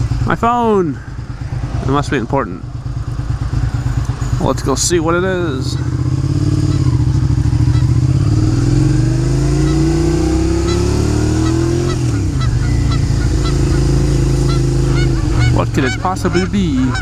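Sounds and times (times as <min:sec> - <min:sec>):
motorcycle engine running: 0:00.0 - 0:17.0
honking bird calls: 0:05.6 - 0:08.2, 0:09.4 - 0:17.0.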